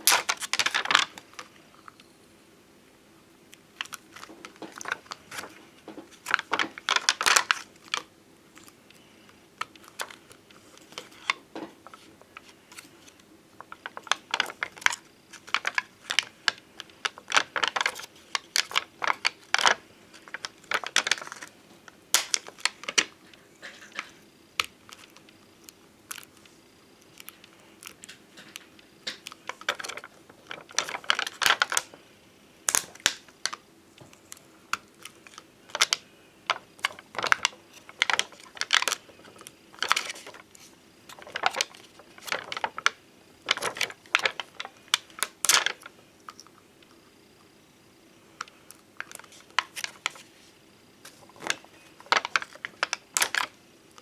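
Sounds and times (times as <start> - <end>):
stickers being tapped and clicked: 3.8 - 21.6, 22.2 - 32.0, 32.7 - 46.5.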